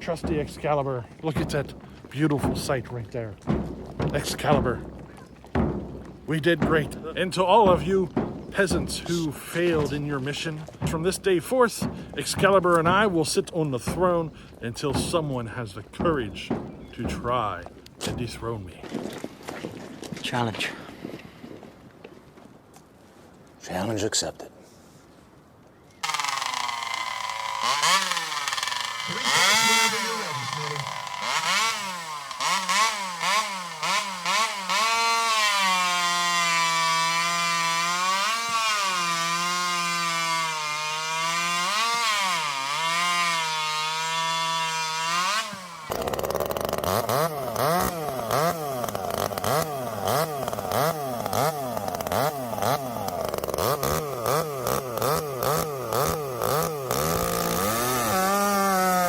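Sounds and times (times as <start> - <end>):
chainsaw revving: 26.0 - 59.0.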